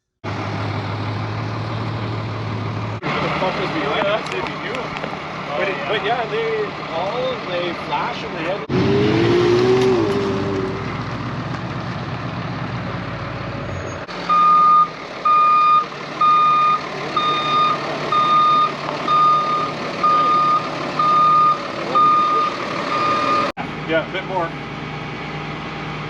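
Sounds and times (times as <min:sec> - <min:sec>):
truck engine running: 0:00.0 - 0:26.0
reversing alarm beeping: 0:14.3 - 0:23.5.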